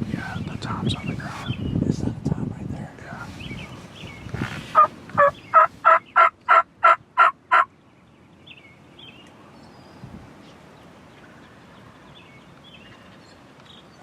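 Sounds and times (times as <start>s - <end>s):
turkey yelping: 4.7s - 7.7s.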